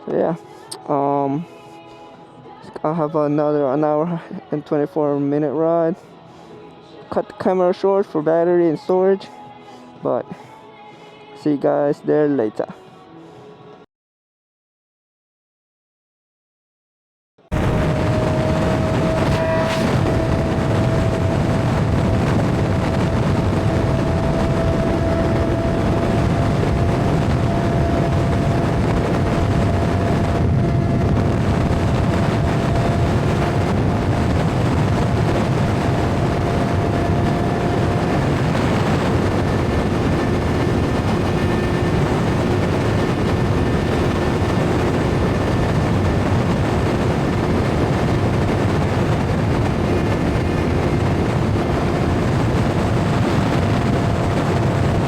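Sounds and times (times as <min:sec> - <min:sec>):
motorcycle engine drone: 0:17.5 - 0:55.0
wind rush over microphone: 0:17.5 - 0:55.0.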